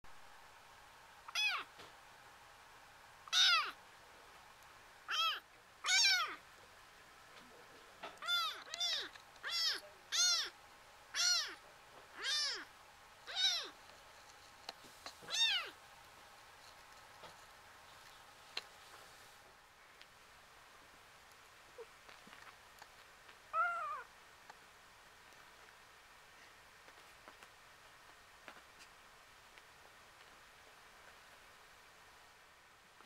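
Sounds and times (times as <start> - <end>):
kitten meowing: 1.3 - 1.7, 3.3 - 3.8, 5.1 - 6.4, 8.2 - 11.6, 12.2 - 13.8, 15.3 - 15.8, 23.5 - 24.1.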